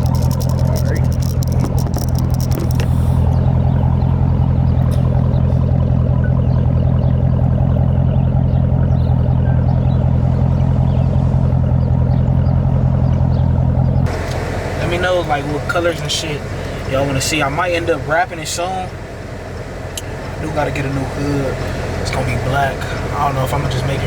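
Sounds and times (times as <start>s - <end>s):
loud car engine droning: 0.0s - 24.0s.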